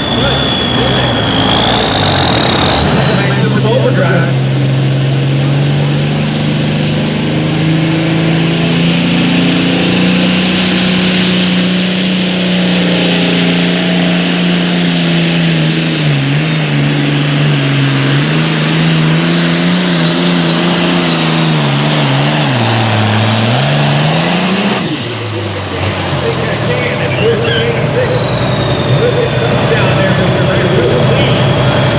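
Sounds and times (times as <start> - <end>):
thin high whine: 0.0 - 4.4
diesel engine running under load: 0.0 - 31.9.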